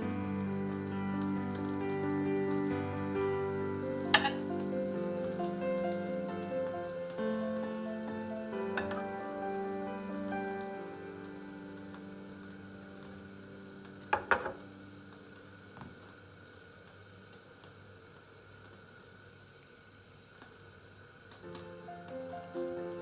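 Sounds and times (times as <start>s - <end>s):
background music: 0.0s - 15.4s, 21.4s - 23.0s
food sizzling in a pan: 0.0s - 23.0s.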